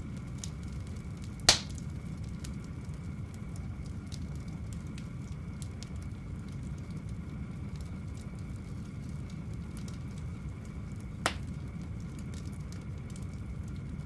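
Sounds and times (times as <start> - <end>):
wood fire crackling: 0.0 - 14.0
loud sharp fire pop: 1.5 - 1.8, 11.2 - 11.5.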